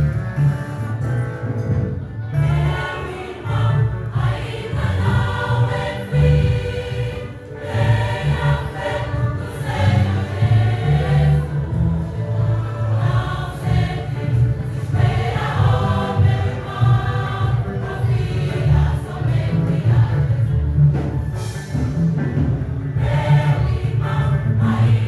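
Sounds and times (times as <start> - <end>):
choir singing gospel with band: 2.4 - 25.0
strong bass line: 7.7 - 25.0.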